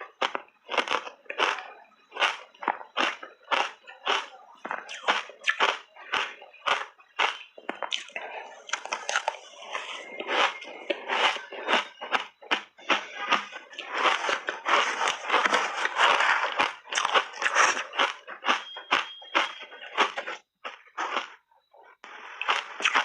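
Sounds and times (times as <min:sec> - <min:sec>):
crunching and chewing ice: 0:00.0 - 0:23.0.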